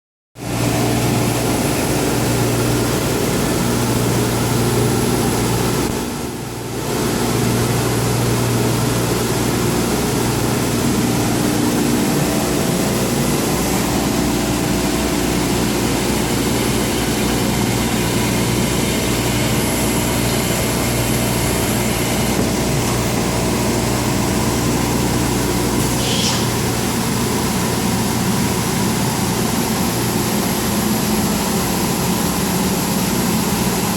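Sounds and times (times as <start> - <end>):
cnc router drone: 23.1 - 33.9.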